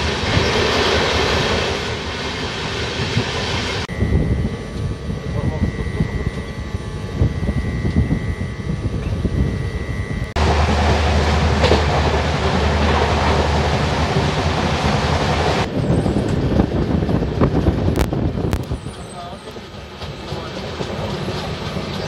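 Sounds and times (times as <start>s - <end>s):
train rumble: 0.0s - 22.0s
wheels clattering over rail joints: 10.4s - 22.0s.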